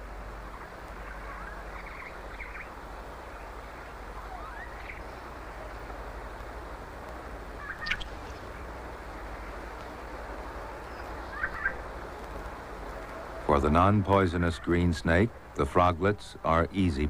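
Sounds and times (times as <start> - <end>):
steady background hiss: 0.0 - 17.0
faint short chirping calls: 0.5 - 5.4, 7.6 - 8.6, 10.8 - 11.8.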